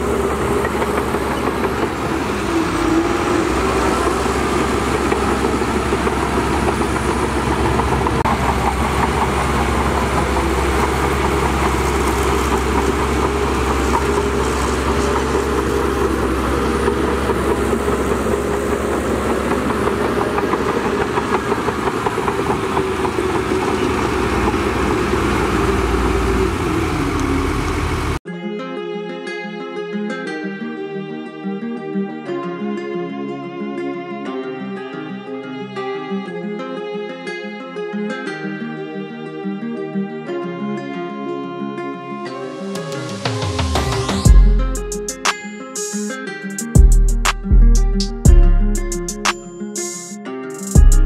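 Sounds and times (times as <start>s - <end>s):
heavy diesel machinery running: 0.0s - 28.2s, 43.8s - 45.2s.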